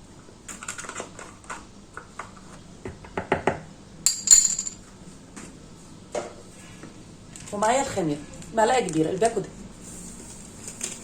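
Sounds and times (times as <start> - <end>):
bright ringing clink: 4.1 - 4.8
utensils clinking against bowl: 4.1 - 4.8.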